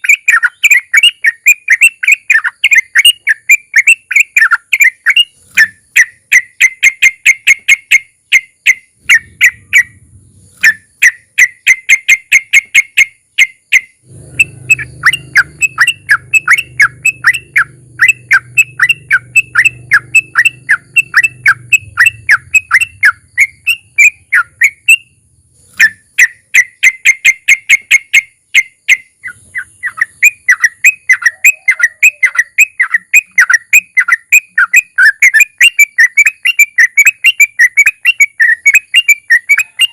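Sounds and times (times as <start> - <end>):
bulbul singing sharp repeated notes: 0.0 - 39.9
faint low hum: 9.0 - 11.0, 14.0 - 26.1.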